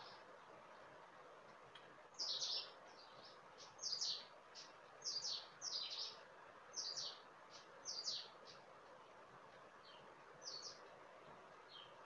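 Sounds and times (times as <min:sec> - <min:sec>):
small bird chirping: 0:00.0 - 0:00.2, 0:02.1 - 0:08.7, 0:09.8 - 0:10.9, 0:11.6 - 0:12.0
faint steady hiss: 0:00.0 - 0:12.0.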